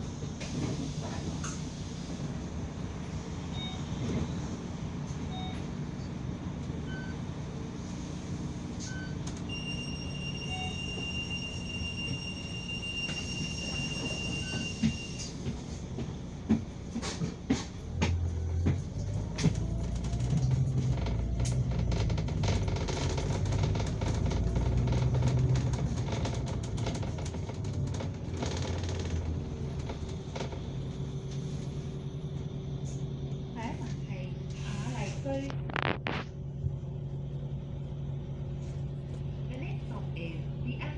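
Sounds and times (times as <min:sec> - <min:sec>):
bus engine and road rumble: 0:00.0 - 0:40.9
short beeps: 0:08.9 - 0:15.2
knocks and rattles: 0:16.6 - 0:30.6.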